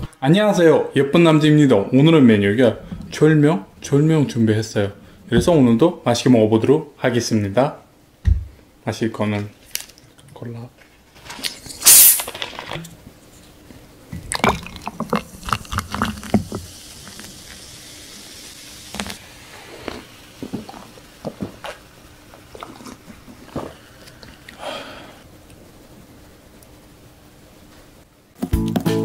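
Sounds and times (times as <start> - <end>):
bottle cap opening hiss: 11.4 - 12.8
cola pouring over ice: 14.2 - 19.2.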